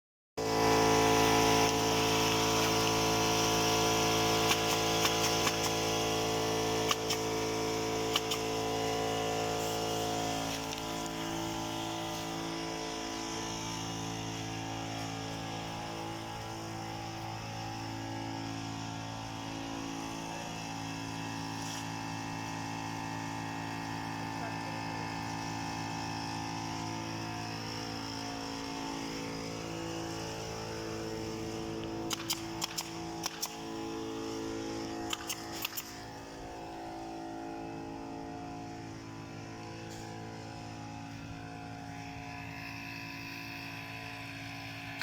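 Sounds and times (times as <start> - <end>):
motor running: 0.4 - 45.0
sharp clicks: 32.1 - 33.6, 35.1 - 36.0.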